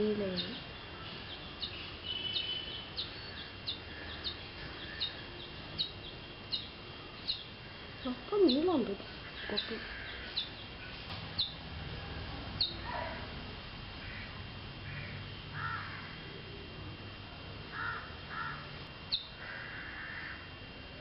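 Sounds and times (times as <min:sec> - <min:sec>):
harsh bird calls: 0:00.2 - 0:11.6, 0:14.0 - 0:16.3, 0:17.7 - 0:20.4
sharp high bird chirps: 0:00.3 - 0:11.6, 0:12.6 - 0:12.8, 0:19.1 - 0:19.4.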